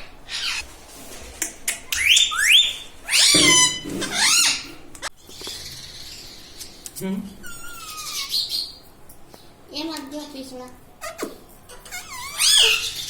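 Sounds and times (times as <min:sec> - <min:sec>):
parrot squawking: 0:00.0 - 0:00.6, 0:01.9 - 0:04.8, 0:07.4 - 0:08.8, 0:11.0 - 0:13.0.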